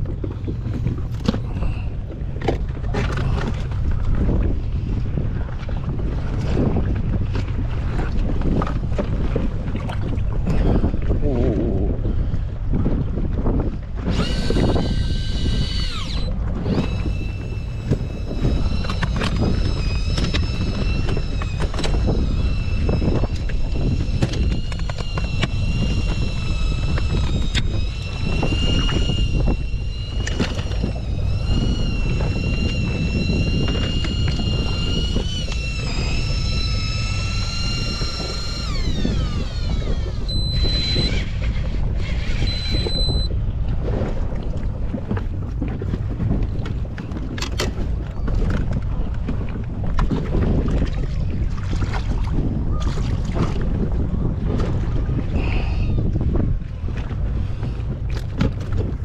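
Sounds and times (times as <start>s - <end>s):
wind rumble on microphone: 0.0s - 59.0s
small electric motor whining: 14.1s - 43.3s
short high beeps: 40.2s - 41.3s, 42.3s - 43.3s.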